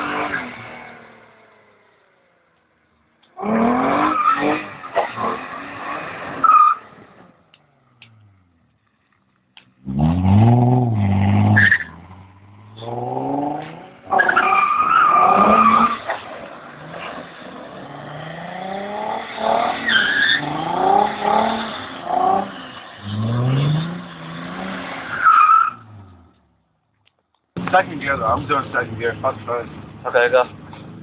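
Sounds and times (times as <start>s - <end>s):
car engine revving hard: 3.4s - 6.5s, 9.8s - 26.3s.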